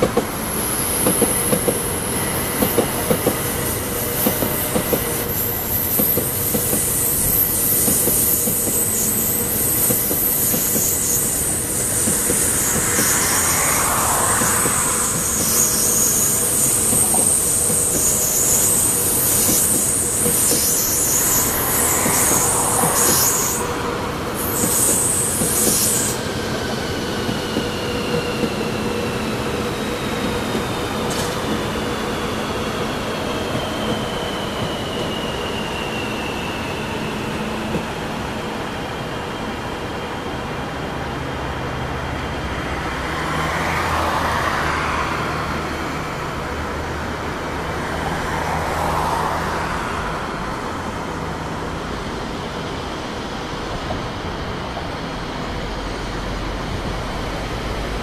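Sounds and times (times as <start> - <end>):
train wheels rumbling on rails: 0.0 - 58.0
high wheel squeal: 0.2 - 39.6.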